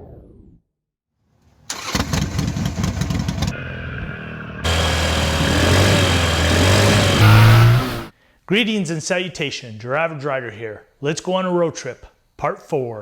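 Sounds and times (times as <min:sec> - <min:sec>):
motorcycle engine starting and running: 0:01.7 - 0:08.1.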